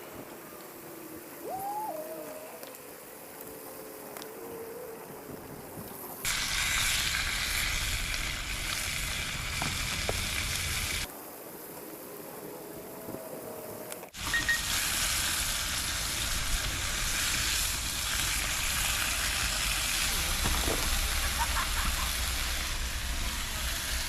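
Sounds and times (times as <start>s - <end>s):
food sizzling in a pan: 6.2s - 11.1s, 14.2s - 24.0s.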